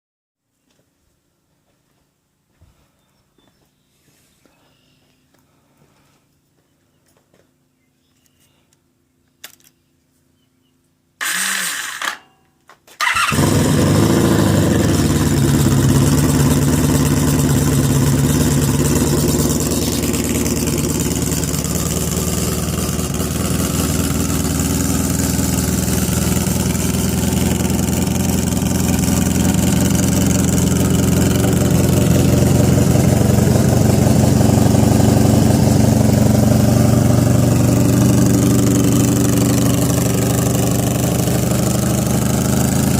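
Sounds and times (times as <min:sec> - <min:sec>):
engine starter cranking: 0:11.2 - 0:12.3, 0:13.0 - 0:14.0
motorcycle engine idling: 0:13.0 - 0:42.9.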